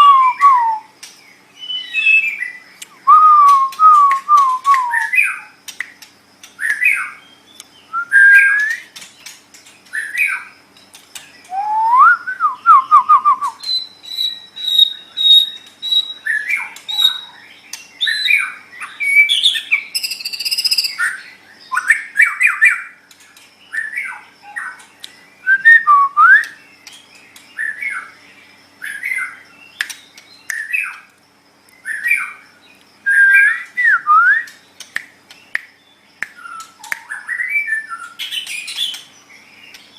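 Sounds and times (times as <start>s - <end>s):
songbird whistling phrases: 0.0s - 1.0s, 1.6s - 5.5s, 6.6s - 9.0s, 11.4s - 22.9s, 25.4s - 26.6s, 33.0s - 34.6s, 36.2s - 39.0s
bird sharp clicks: 2.8s - 7.7s, 29.8s - 31.1s, 34.4s - 37.2s.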